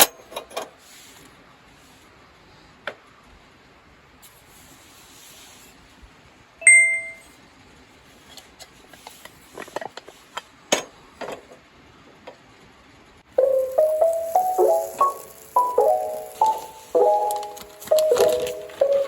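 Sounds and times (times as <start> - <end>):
metallic ding: 6.6 - 7.2.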